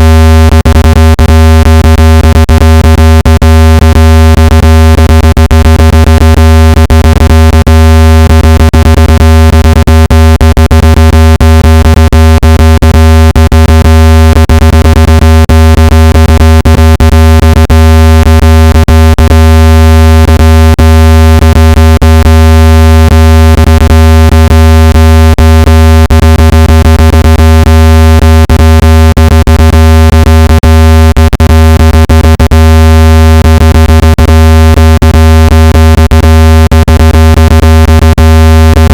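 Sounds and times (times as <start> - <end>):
loud low electronic hum: 0.0 - 9.8.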